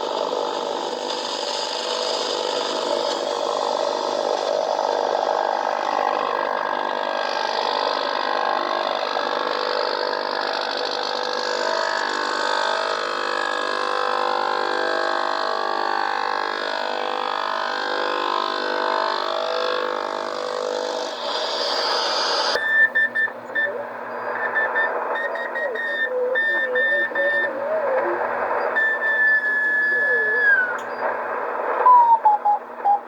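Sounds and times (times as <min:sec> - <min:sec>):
hissy shortwave radio whistles: 0:00.0 - 0:33.0
pulsing beeping data signal: 0:21.7 - 0:31.0.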